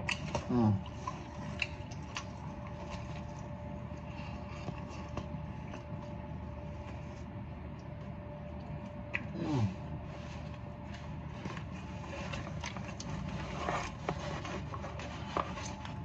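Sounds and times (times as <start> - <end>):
steady low hum: 0.0 - 16.0
person humming: 0.4 - 0.9, 9.3 - 9.8.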